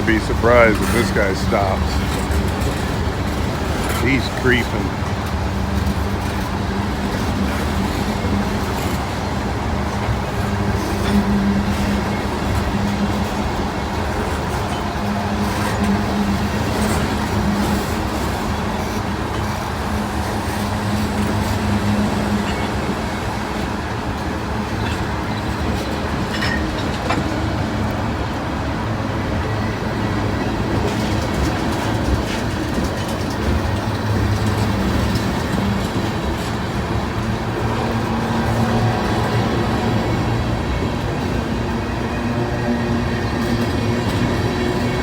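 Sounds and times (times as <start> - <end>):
freight train rolling slowly: 0.0 - 45.0.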